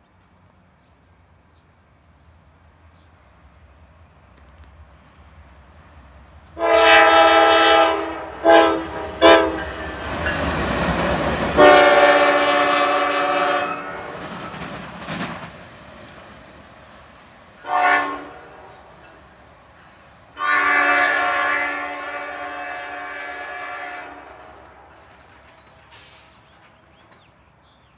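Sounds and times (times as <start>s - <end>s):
locomotive air horn blasts: 6.6s - 10.0s, 11.5s - 14.2s, 17.6s - 18.8s, 20.4s - 24.6s.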